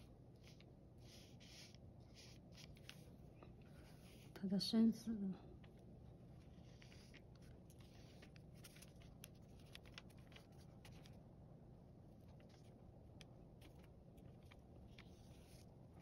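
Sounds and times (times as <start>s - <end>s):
pen scratching on paper: 0.4s - 3.0s, 6.4s - 11.1s.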